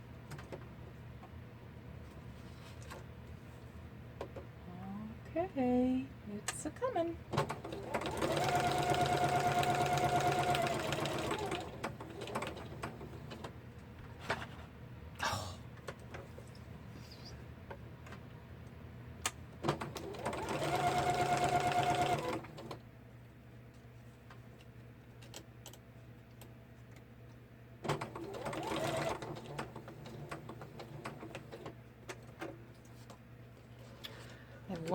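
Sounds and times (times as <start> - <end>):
sewing machine stitching: 7.4 - 13.4, 19.6 - 22.8, 27.9 - 31.7.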